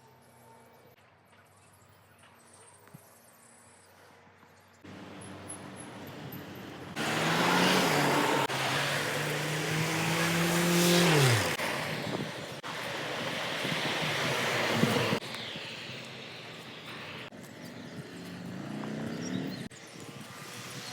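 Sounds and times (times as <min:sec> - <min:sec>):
motor vehicle passing: 0:04.9 - 0:15.2.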